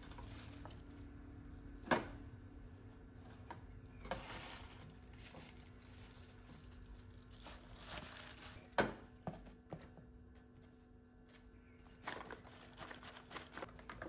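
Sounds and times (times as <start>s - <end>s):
packaging crinkling and rustling: 4.1s - 8.8s, 12.0s - 14.0s.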